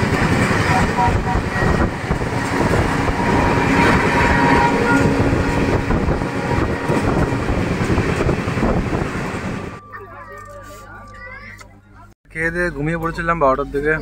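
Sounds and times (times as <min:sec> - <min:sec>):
train wheels on rails: 0:00.0 - 0:09.8.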